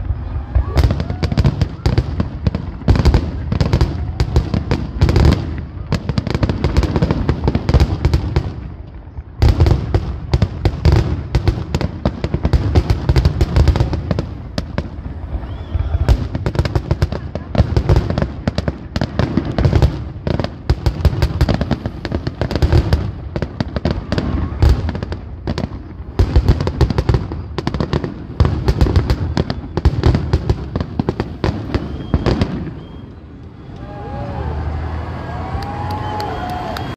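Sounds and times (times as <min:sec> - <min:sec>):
fireworks bangs and crackles: 0:00.0 - 0:36.9.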